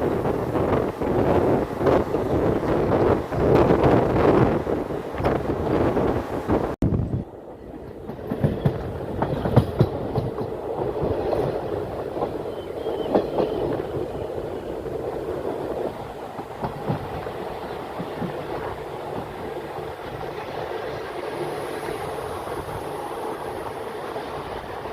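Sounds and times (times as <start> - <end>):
train wheels rumbling on rails: 0.0 - 24.9
knocks and clicks over track: 8.0 - 12.4.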